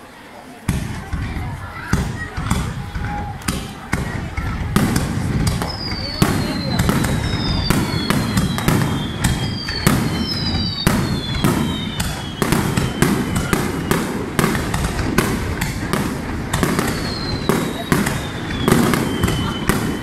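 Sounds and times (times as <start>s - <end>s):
firework bangs: 0.7s - 20.0s
firework whistles falling in pitch: 5.6s - 14.7s, 16.6s - 20.0s.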